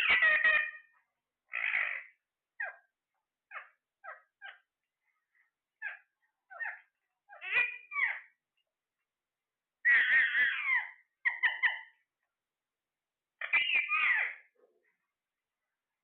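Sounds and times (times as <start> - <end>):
parrot squawking: 0.0 - 2.9, 3.5 - 4.7, 5.8 - 8.4, 9.8 - 12.0, 13.4 - 14.5.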